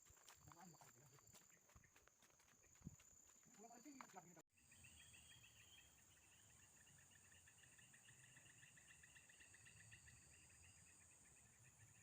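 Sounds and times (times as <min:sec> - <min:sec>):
insect pulsed trill: 0:02.6 - 0:12.0.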